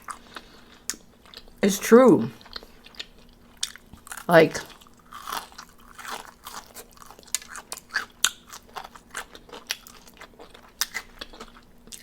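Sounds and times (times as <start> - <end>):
crunching fried chicken: 2.4 - 12.0
wet chewing: 2.4 - 12.0.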